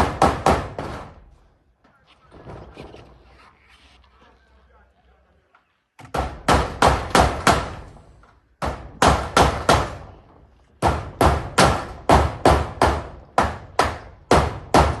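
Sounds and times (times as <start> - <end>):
hammer driving nails: 0.0 - 1.2, 6.0 - 8.0, 8.6 - 10.2, 10.8 - 15.0.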